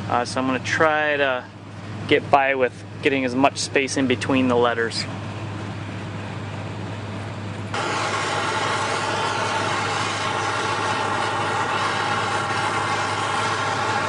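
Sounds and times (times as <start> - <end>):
chainsaw running: 7.8 - 14.0.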